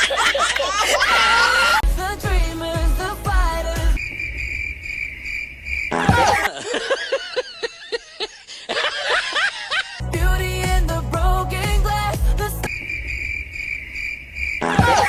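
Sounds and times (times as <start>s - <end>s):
pop music: 1.6s - 4.0s, 10.0s - 12.7s
cricket chirping: 4.0s - 6.0s, 12.7s - 14.6s
squeaky voice-like sounds: 14.6s - 15.0s.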